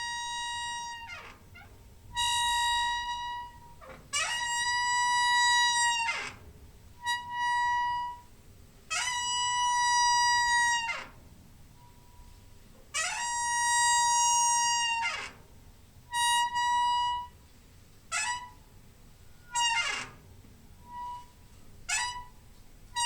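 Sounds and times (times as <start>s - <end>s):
squeaking door hinge: 0.0s - 8.3s, 8.9s - 11.2s, 13.0s - 15.5s, 18.1s - 18.6s, 19.3s - 22.4s.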